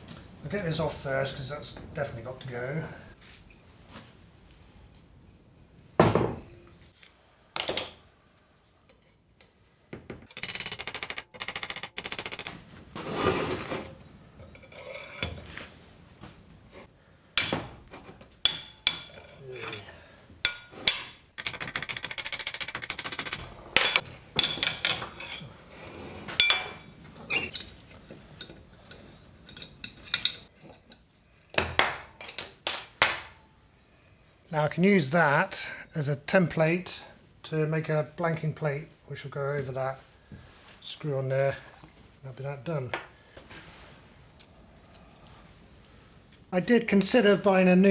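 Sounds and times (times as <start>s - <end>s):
ratchet rapid clicking: 10.4s - 12.5s
sharp knocks on metal: 17.4s - 17.8s.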